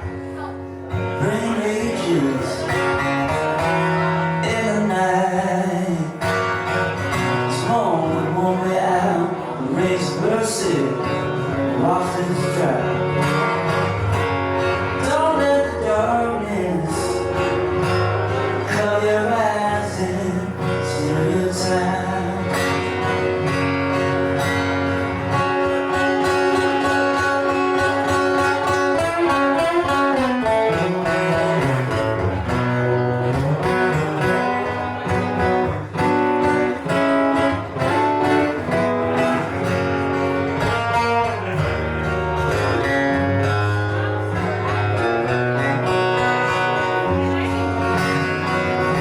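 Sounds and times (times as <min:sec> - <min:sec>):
lead guitar melody: 0:00.0 - 0:49.0
strummed guitar: 0:00.0 - 0:49.0.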